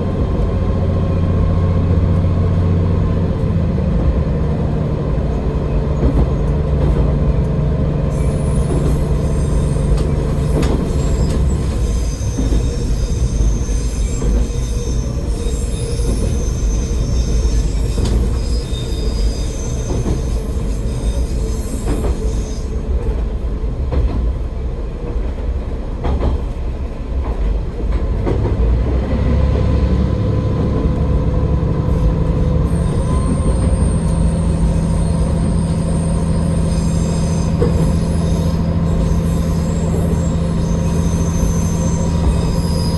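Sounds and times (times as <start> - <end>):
wheels rumbling on rail: 0.0 - 42.9
high wheel squeal: 8.0 - 23.7, 29.3 - 42.9.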